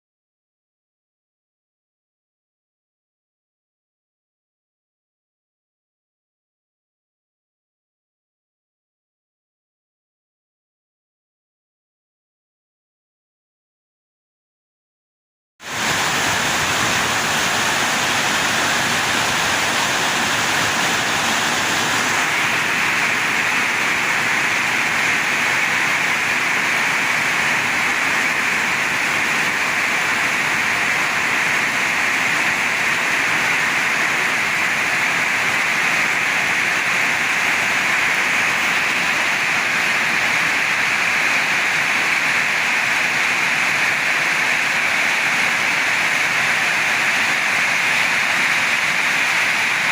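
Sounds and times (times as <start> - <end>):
heavy rain in strong wind: 15.6 - 49.9.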